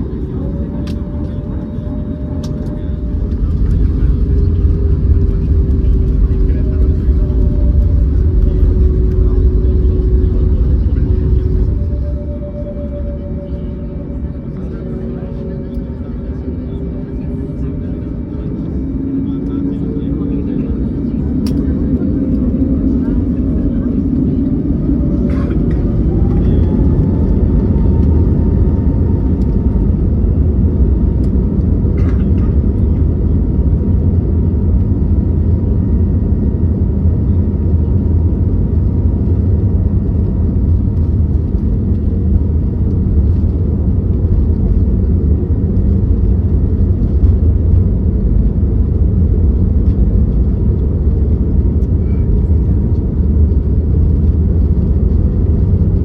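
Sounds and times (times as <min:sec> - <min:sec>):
faint steady whine: 0:00.0 - 0:20.0
engine and airflow rumble: 0:00.0 - 0:56.0.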